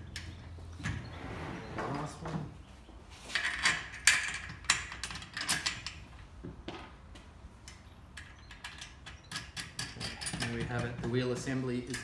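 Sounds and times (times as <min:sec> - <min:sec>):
small metal clicks and knocks: 0:03.3 - 0:06.0, 0:07.6 - 0:12.0.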